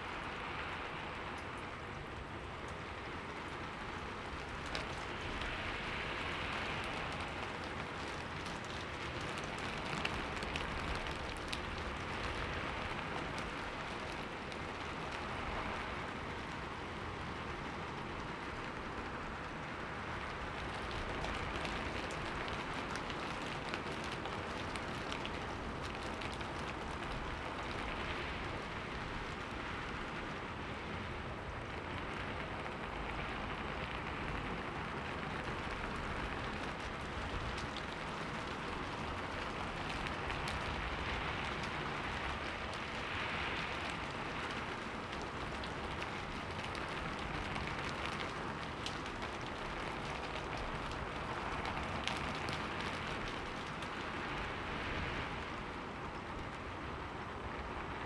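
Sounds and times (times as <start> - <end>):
rain pattering on a window: 0.0 - 58.0.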